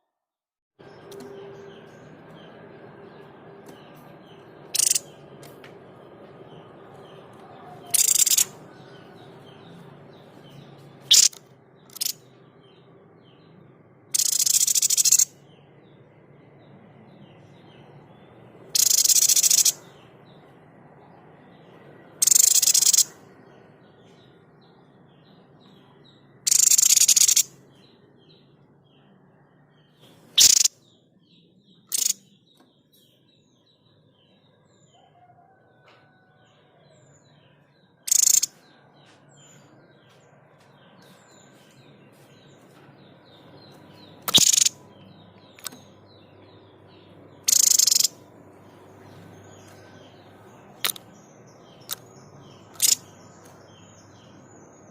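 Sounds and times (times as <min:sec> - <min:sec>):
faint chirping: 0:04.3 - 0:05.2, 0:07.7 - 0:08.6, 0:14.1 - 0:15.3, 0:18.7 - 0:19.8, 0:22.2 - 0:23.2, 0:30.2 - 0:30.7, 0:31.8 - 0:32.9, 0:38.0 - 0:38.9, 0:43.4 - 0:48.3, 0:49.0 - 0:54.9
bird harsh explosive calls: 0:30.4 - 0:30.7, 0:44.3 - 0:44.8.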